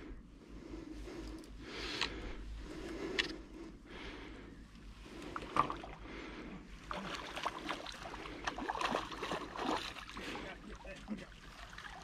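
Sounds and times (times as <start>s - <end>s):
water lapping against boat hull: 5.0s - 12.0s.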